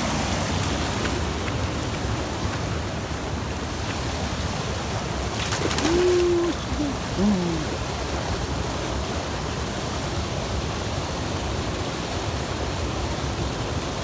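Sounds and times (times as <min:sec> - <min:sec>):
mountain stream rushing: 0:00.0 - 0:14.0
low held call: 0:05.6 - 0:07.9.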